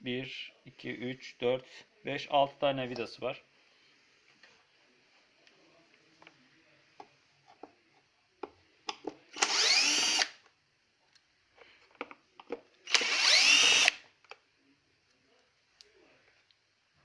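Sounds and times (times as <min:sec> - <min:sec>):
cordless drill running: 0:09.3 - 0:10.4, 0:12.9 - 0:14.0
clicks and knocks of handling parts: 0:11.0 - 0:12.7.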